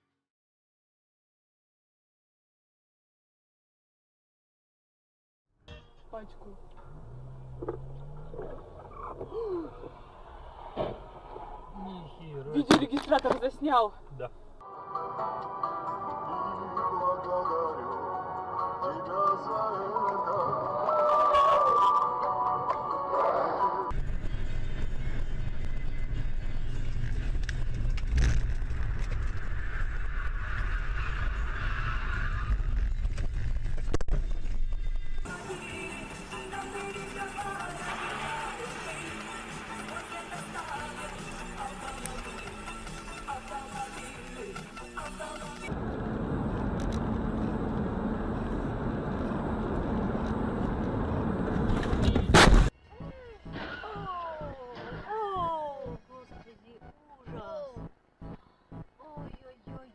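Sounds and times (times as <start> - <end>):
car road and engine noise: 5.9 - 14.6, 17.0 - 52.8
vehicle rumble: 5.9 - 14.6, 23.3 - 59.9.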